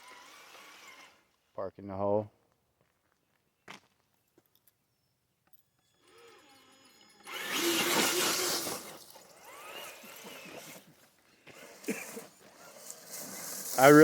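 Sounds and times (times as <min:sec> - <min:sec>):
electric motor whining: 0:05.9 - 0:14.0.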